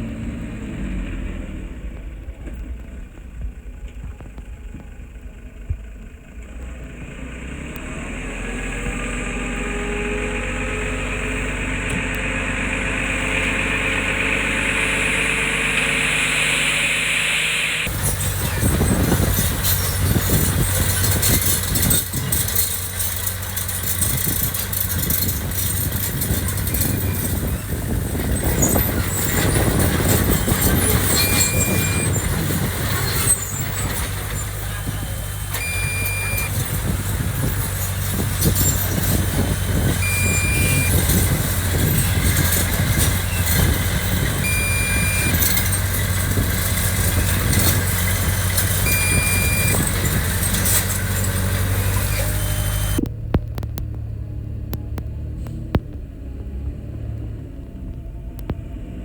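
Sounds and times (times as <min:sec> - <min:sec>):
diesel engine of heavy machinery: 0:00.0 - 0:59.0
short high-pitched beep: 0:31.2 - 0:32.1, 0:35.6 - 0:36.6, 0:40.0 - 0:41.1, 0:44.4 - 0:45.6, 0:48.8 - 0:49.8.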